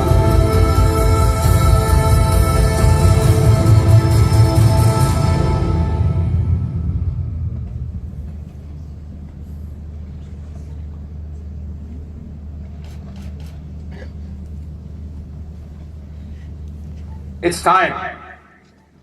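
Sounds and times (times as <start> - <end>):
music: 0.0 - 8.4
low rumble: 0.0 - 12.6.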